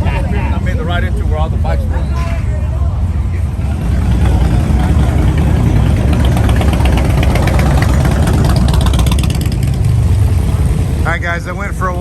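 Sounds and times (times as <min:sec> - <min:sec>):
motorcycle engine idling: 0:04.0 - 0:12.0.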